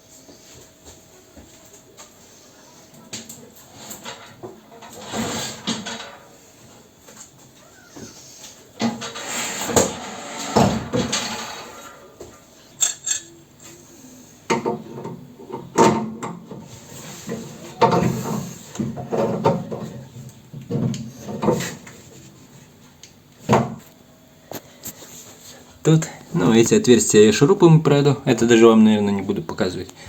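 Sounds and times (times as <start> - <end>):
metal scraping: 3.7 - 6.3, 8.8 - 12.2
metal parts clattering and knocking: 3.9 - 6.2, 8.8 - 11.9.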